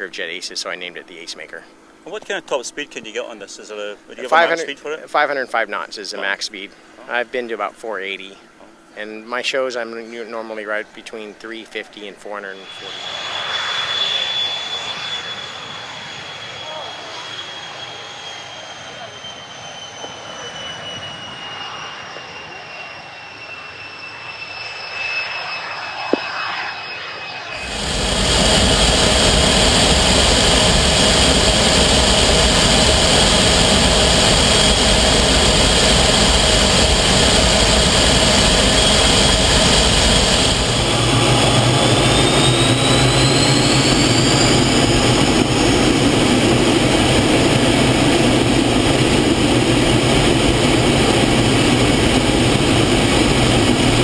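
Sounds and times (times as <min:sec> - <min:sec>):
jet engine whining: 0:00.0 - 0:54.0
loud jet rush: 0:04.0 - 0:05.0, 0:12.4 - 0:19.0, 0:23.6 - 0:54.0.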